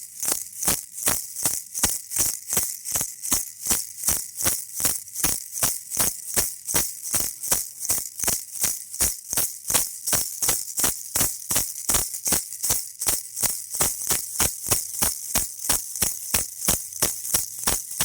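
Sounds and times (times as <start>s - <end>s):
baby rattle shaking: 0.0s - 18.0s.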